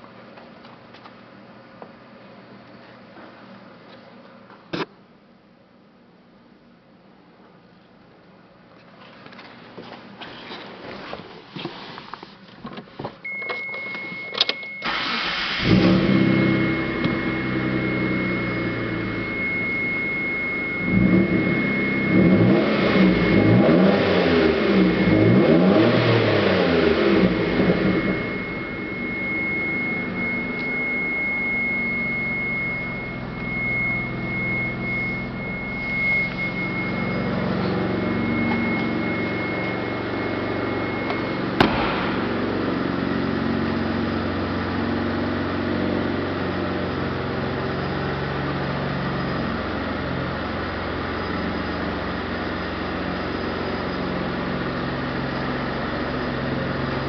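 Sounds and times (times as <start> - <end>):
high-pitched warning tone: 13.3 - 48.3
car engine idling and revving: 14.8 - 57.0.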